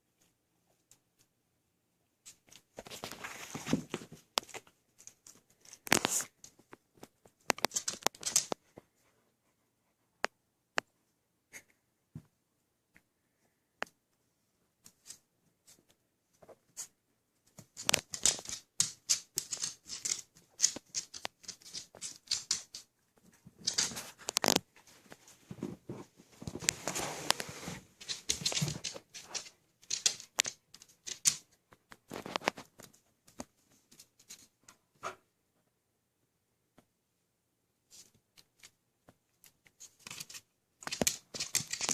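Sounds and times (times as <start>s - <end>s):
puppies scratching and clicking: 7.5s - 8.6s, 17.8s - 22.9s, 23.6s - 24.6s, 28.0s - 31.4s, 39.8s - 41.9s.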